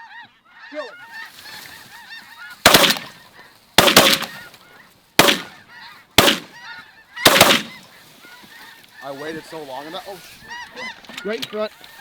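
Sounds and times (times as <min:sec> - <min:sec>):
shotgun blasts: 0:02.6 - 0:03.2, 0:03.8 - 0:04.6, 0:05.2 - 0:05.6, 0:06.2 - 0:06.6, 0:07.2 - 0:07.9.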